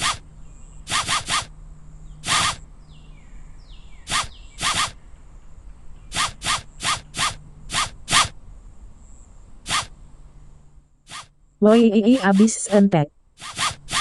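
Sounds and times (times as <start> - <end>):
quick zip-like swishes: 0.0 - 0.2, 0.9 - 1.5, 2.2 - 2.6, 4.1 - 5.0, 6.1 - 8.4, 9.7 - 9.9, 11.1 - 11.3, 13.4 - 14.0.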